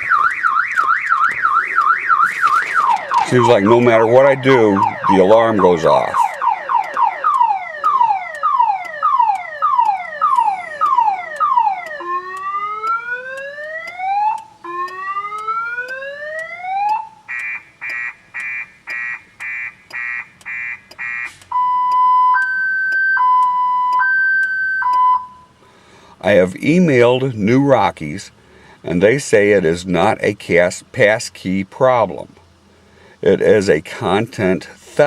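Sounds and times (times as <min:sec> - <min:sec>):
car alarm siren: 0:00.0 - 0:25.6.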